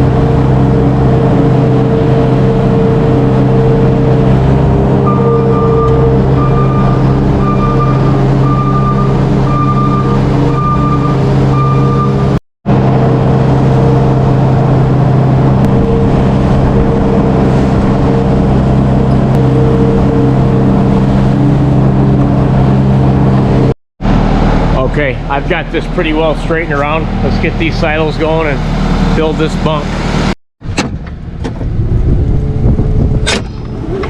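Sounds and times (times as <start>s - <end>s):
tractor engine running: 0.0s - 34.0s
backup alarm beeping: 5.0s - 12.4s.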